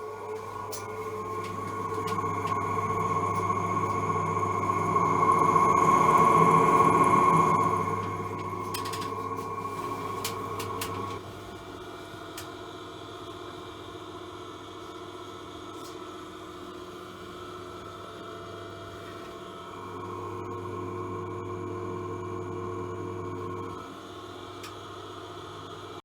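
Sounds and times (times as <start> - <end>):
ventilation fan humming and whining: 0.0 - 13.3.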